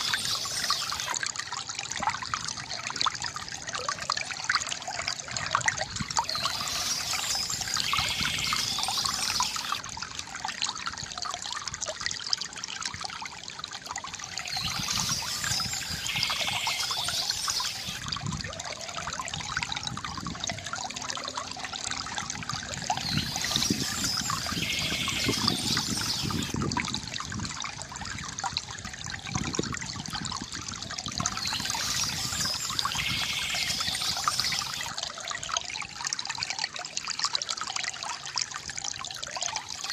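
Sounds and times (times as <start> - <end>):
high chirping: 0.0 - 1.2, 6.2 - 9.8, 14.5 - 18.0, 23.0 - 26.5, 31.3 - 34.9
water trickling from bamboo fountain: 0.0 - 39.9.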